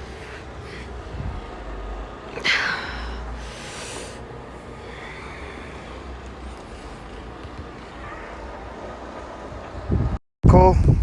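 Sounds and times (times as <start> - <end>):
wind on microphone: 9.5 - 11.0.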